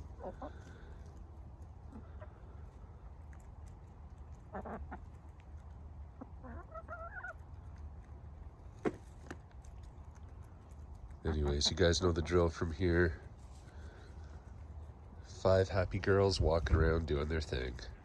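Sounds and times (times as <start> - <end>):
hens clucking: 0.0 - 1.2, 1.8 - 2.8, 4.2 - 8.0, 8.8 - 16.2.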